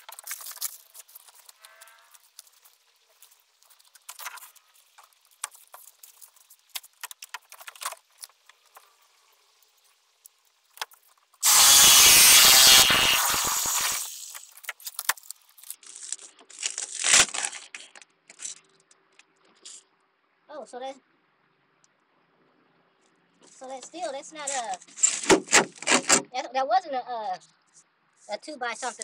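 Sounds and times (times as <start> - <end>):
power tool burst: 11.4 - 14.5.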